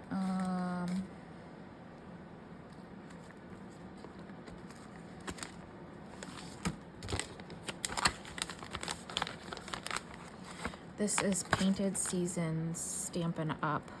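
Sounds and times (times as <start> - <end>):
paper rustling and crinkling: 3.0 - 12.3.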